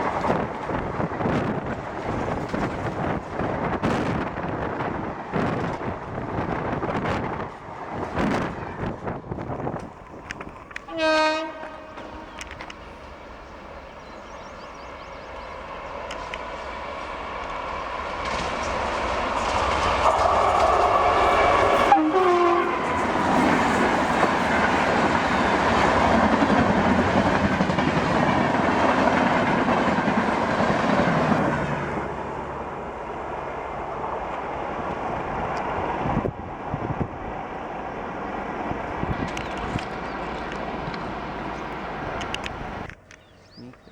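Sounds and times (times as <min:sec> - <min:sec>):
train wheel clatter: 0:00.0 - 0:31.7, 0:38.4 - 0:43.3
train passing at high speed: 0:00.0 - 0:43.2
train horn: 0:10.8 - 0:12.6, 0:20.0 - 0:24.9.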